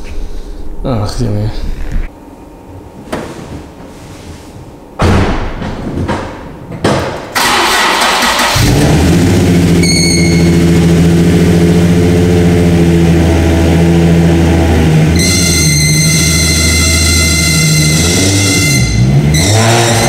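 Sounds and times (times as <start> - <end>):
loud knocks: 5.0 - 7.4
car engine cranking and idling: 7.3 - 15.5.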